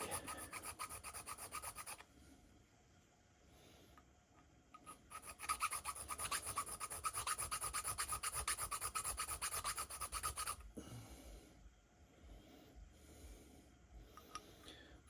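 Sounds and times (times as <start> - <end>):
hand file rasping on metal threads: 0.0 - 2.0, 4.9 - 10.6.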